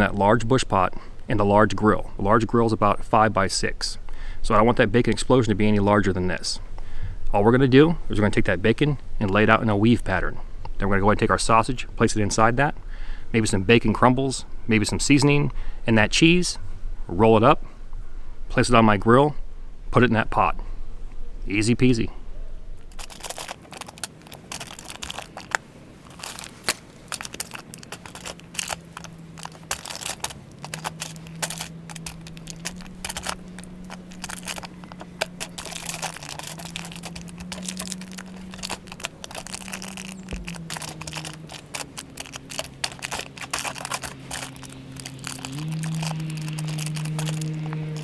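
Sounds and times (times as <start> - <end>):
plastic wrapping crinkling: 22.8 - 48.0.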